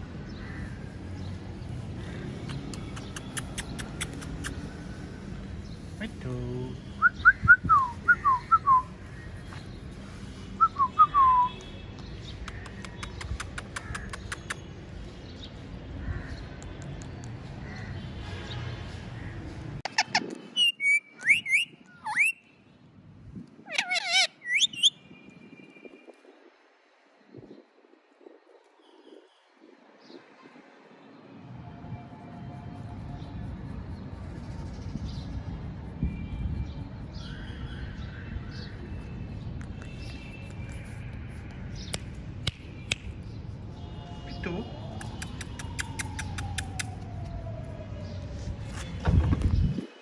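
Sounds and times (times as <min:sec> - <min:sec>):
sharp clicks: 0:02.4 - 0:04.6, 0:12.4 - 0:14.6, 0:44.9 - 0:47.0
parrot whistling and squawking: 0:19.9 - 0:22.4, 0:23.7 - 0:25.0
parrot calling: 0:23.7 - 0:24.9.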